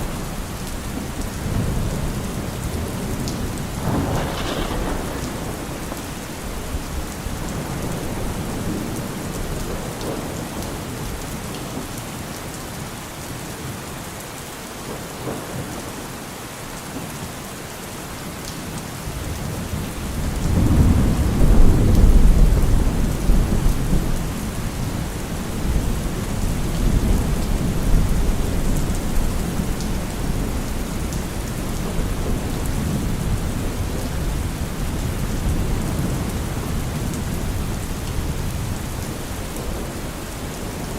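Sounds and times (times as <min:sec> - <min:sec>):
thunder rumbling: 0:00.0 - 0:10.7, 0:20.0 - 0:40.9
steady rain falling: 0:00.0 - 0:40.9.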